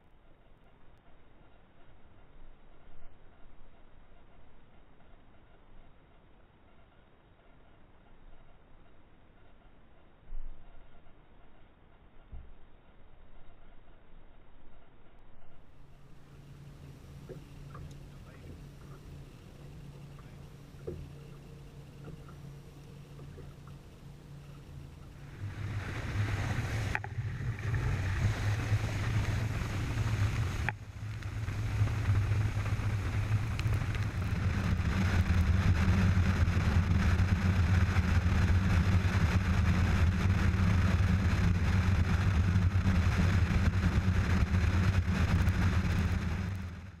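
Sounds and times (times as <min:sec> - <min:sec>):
outboard motor drone: 0:15.6 - 0:47.0
rushing water and wind: 0:25.1 - 0:42.2.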